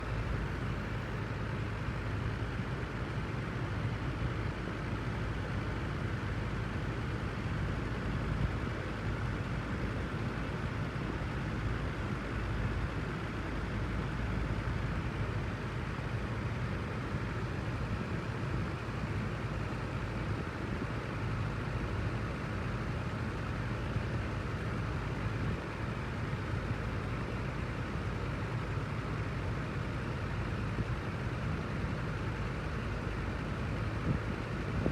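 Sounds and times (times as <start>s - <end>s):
fan rushing noise: 7.5s - 34.9s.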